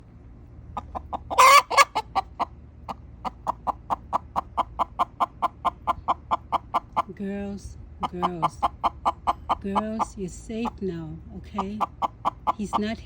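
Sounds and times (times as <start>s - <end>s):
hens alarm clucking: 0.7s - 7.4s, 8.0s - 13.0s
chicken squawks: 0.8s - 7.1s, 8.0s - 9.6s, 11.6s - 12.6s.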